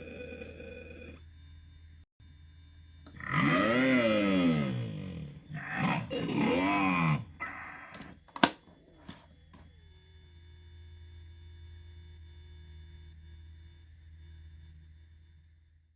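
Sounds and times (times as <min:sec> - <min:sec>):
warped toy voice: 0:00.0 - 0:01.2, 0:03.1 - 0:08.2
electronic drone: 0:00.0 - 0:10.4.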